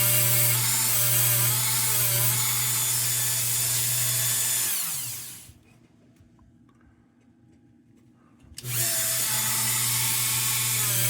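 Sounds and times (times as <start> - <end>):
electric drill running: 0.0 - 5.6, 8.6 - 11.0.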